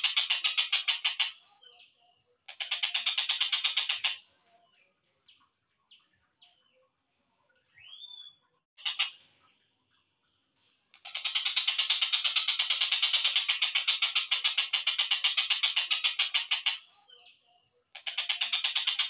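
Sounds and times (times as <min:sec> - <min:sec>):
bird chirps: 0:00.0 - 0:07.0, 0:07.6 - 0:09.6, 0:11.0 - 0:19.0
slowed bird pulsing rattle: 0:11.0 - 0:16.9.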